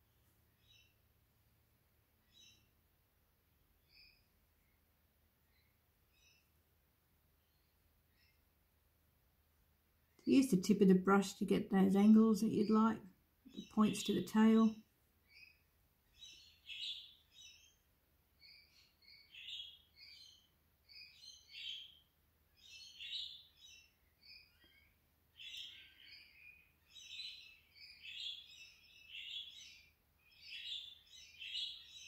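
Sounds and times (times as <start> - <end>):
birds chirping: 10.0 - 32.0.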